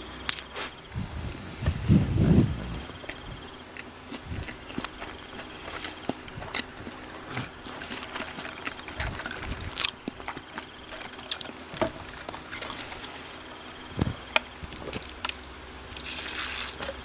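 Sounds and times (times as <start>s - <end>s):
person chewing and crunching food: 0.1s - 17.0s
low muffled burst: 0.8s - 3.4s.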